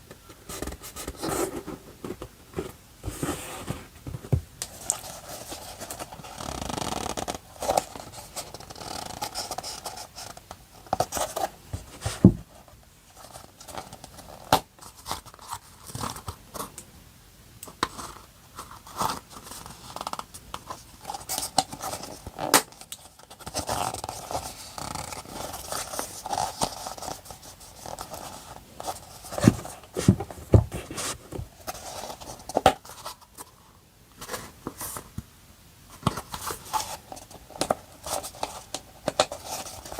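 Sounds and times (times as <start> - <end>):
paper rustling and scraping: 0.4 - 16.7, 17.9 - 33.6.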